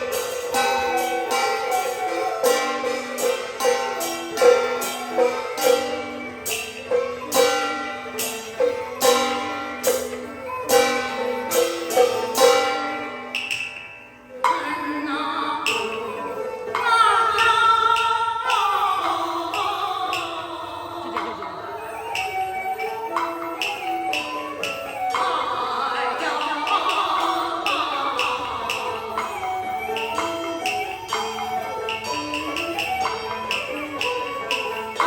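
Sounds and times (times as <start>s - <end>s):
melodic instruments: 0.0s - 16.8s
percussion strikes: 0.0s - 35.0s.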